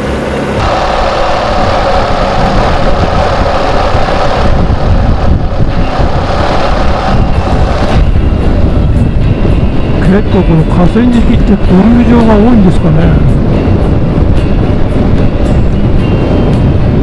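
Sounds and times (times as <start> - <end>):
wind noise on microphone: 0.0 - 17.0
motorcycle engine running: 0.6 - 10.0.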